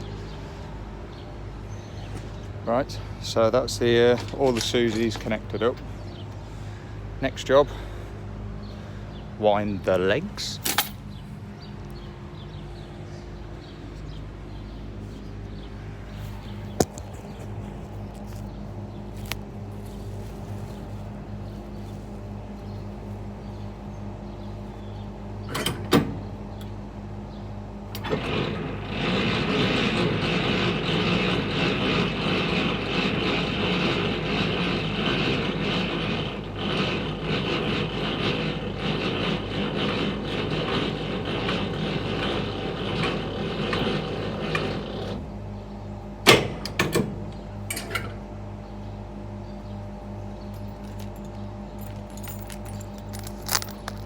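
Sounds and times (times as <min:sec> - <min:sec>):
truck engine idling: 0:00.0 - 0:27.5
grinding rattle of gearing: 0:03.0 - 0:06.7, 0:09.8 - 0:11.2, 0:27.8 - 0:45.4, 0:50.2 - 0:54.0
metal clanks of crank handle: 0:10.5 - 0:11.1, 0:25.5 - 0:26.2, 0:46.3 - 0:48.2.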